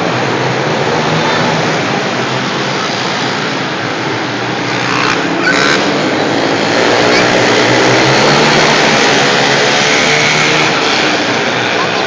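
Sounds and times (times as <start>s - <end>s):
motorbike engines at high revs: 4.5s - 12.0s.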